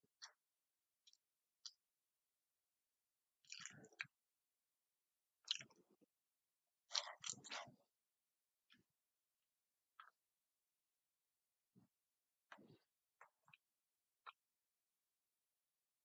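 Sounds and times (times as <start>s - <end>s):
person chewing: 5.5s - 5.9s, 6.9s - 7.7s.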